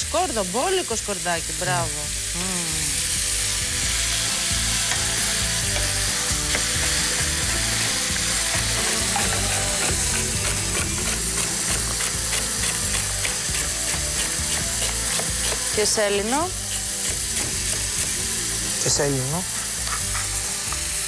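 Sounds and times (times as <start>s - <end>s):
meat sizzling in hot oil: 0.0s - 21.0s
wooden spoon stirring: 8.4s - 15.8s.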